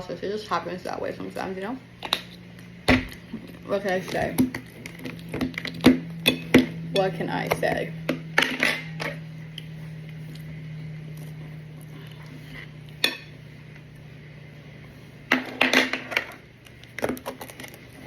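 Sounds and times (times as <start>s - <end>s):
low steady hum: 0.0s - 18.0s
dishes and utensils clattering: 8.4s - 9.2s.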